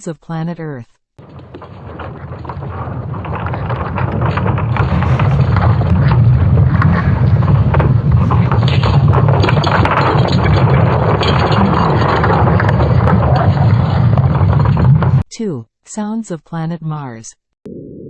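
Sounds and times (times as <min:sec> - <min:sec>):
crackles: 0:01.2 - 0:15.2
deep noisy rumble: 0:01.2 - 0:15.2.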